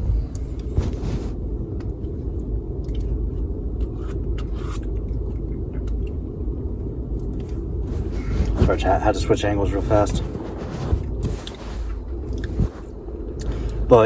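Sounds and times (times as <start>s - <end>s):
car engine rumble: 0.0s - 14.0s.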